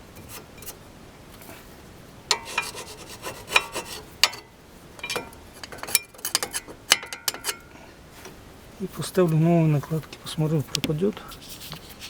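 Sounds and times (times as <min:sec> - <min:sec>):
scrubbing scrapes on metal: 0:02.3 - 0:04.4.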